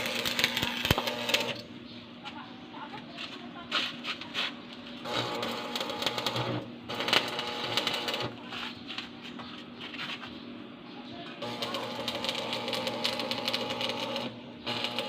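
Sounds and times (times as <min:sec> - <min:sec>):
welding arc crackling sizzle: 0:00.0 - 0:01.7, 0:05.0 - 0:08.6, 0:11.4 - 0:15.0
steady low hum: 0:00.0 - 0:15.0.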